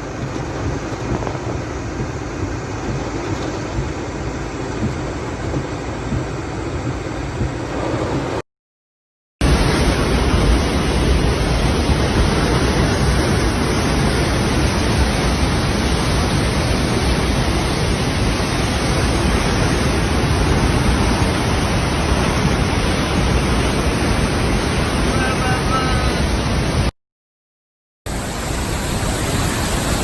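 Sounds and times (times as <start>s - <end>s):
storm rushing noise: 6.0s - 8.4s, 9.4s - 26.9s, 28.1s - 30.0s.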